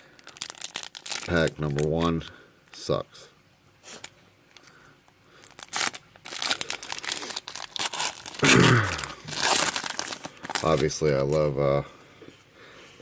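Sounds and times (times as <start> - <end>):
foil wrapper tearing and crinkling: 0.1 - 2.2, 5.4 - 11.4.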